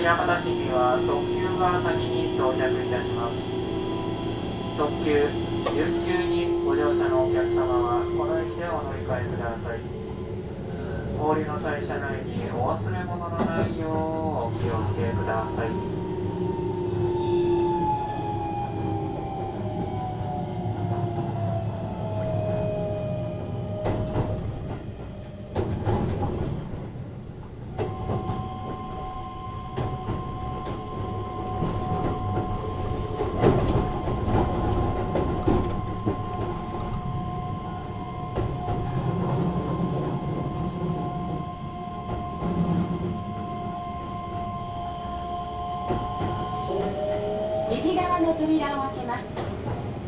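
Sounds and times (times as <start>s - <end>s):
train motor whine: 0.0s - 10.4s, 27.7s - 50.0s
steady whines: 0.0s - 50.0s
train wheels rumbling on rail: 0.0s - 50.0s.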